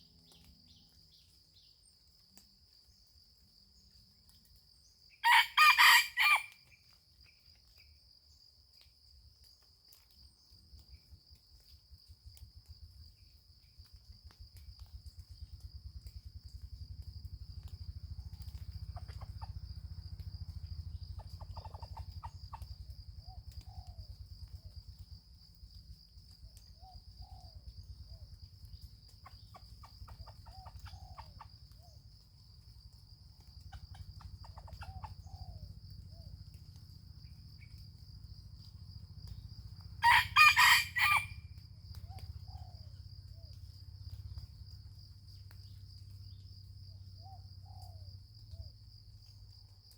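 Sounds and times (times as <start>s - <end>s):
rooster crowing: 5.2s - 6.6s, 40.0s - 41.5s.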